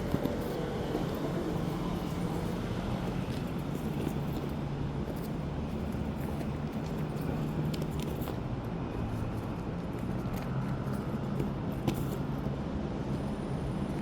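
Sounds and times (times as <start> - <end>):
street traffic noise: 0.0 - 14.0.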